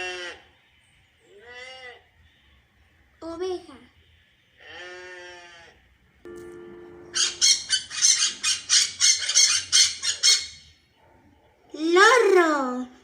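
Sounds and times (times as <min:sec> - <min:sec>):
sheep bleating: 0:00.0 - 0:00.5, 0:04.6 - 0:05.8
high sharp chirps: 0:06.3 - 0:09.7.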